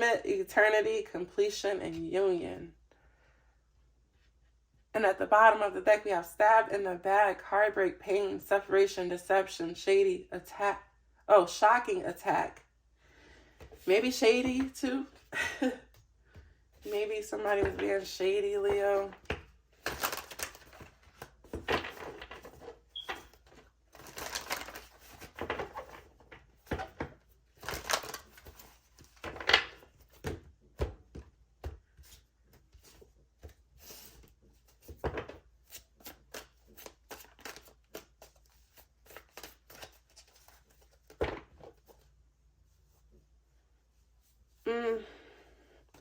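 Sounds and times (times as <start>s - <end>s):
cards rustling: 16.8s - 30.2s, 35.6s - 42.1s.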